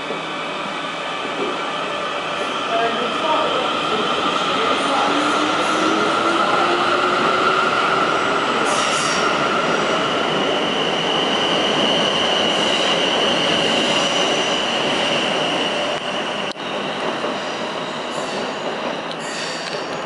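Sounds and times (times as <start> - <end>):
train wheels on rails: 0.0 - 20.0.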